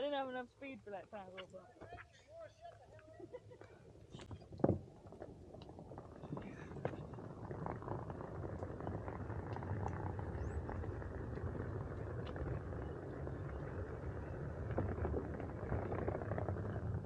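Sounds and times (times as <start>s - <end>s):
wind on microphone: 4.1s - 17.0s
wheels rumbling over ground: 4.2s - 17.0s.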